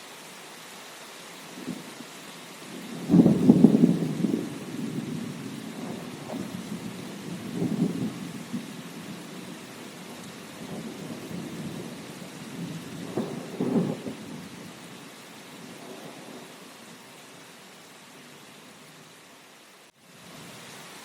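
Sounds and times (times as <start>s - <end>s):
steady rain: 0.0s - 21.0s
thunder rumbling: 2.6s - 15.0s, 15.6s - 16.6s.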